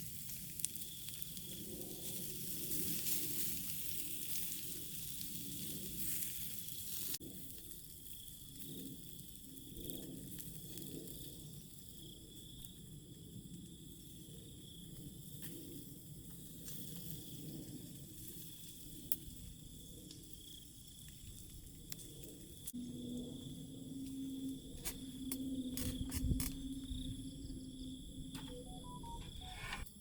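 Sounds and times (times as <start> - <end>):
sparse crackles and clicks: 16.4 - 22.8, 24.0 - 26.8.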